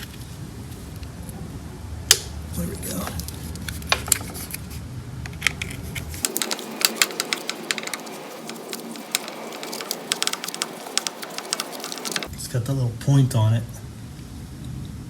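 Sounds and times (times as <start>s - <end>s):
hand tools clicking on metal: 5.4s - 12.3s.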